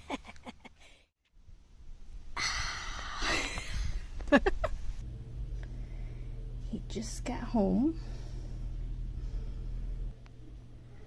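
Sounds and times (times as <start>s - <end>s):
person exhaling breathily: 2.4s - 4.1s
person laughing stifled: 3.2s - 4.9s.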